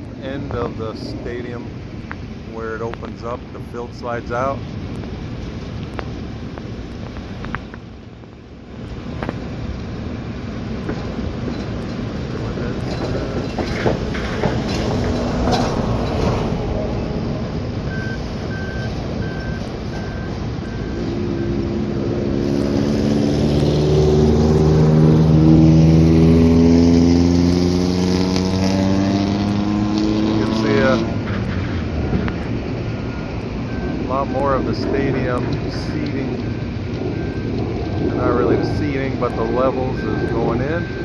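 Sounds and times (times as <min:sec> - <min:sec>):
road traffic noise: 0:00.0 - 0:41.0
vehicle engine accelerating: 0:10.8 - 0:41.0
backup alarm beeping: 0:17.8 - 0:21.9, 0:32.8 - 0:41.0.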